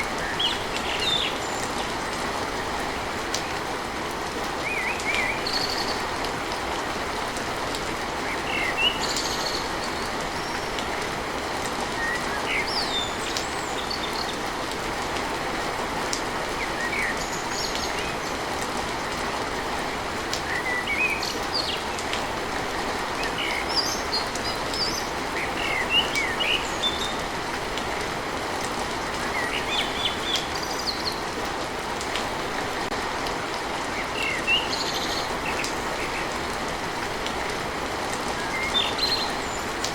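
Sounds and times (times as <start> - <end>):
small birds chirping: 0.0 - 2.2, 8.2 - 11.2, 11.9 - 14.6, 16.6 - 18.5, 23.0 - 27.4, 28.9 - 31.4, 33.9 - 36.5, 38.2 - 39.9
rain on a tin roof: 0.0 - 39.9
sharp water drips: 0.0 - 39.9.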